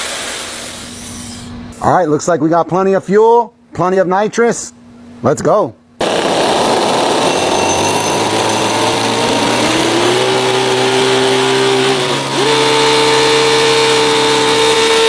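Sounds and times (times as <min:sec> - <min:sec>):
model engines whining: 0:06.0 - 0:15.0.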